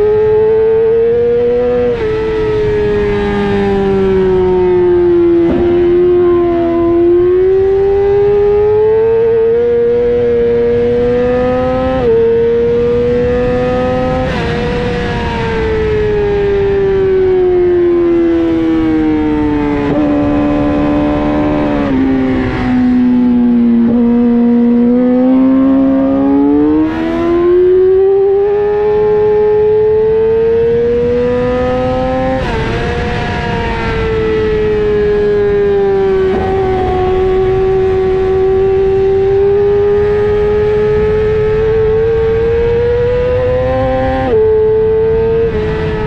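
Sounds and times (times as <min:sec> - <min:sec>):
motorcycle engine revving: 0:00.0 - 0:46.0
wind rush over microphone: 0:11.9 - 0:25.4, 0:30.6 - 0:46.0.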